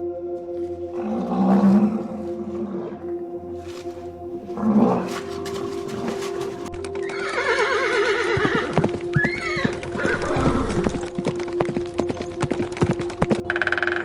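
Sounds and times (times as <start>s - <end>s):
background music: 0.0s - 14.0s
horse whinnying: 4.6s - 11.0s
hooves clip-clopping: 4.8s - 14.0s.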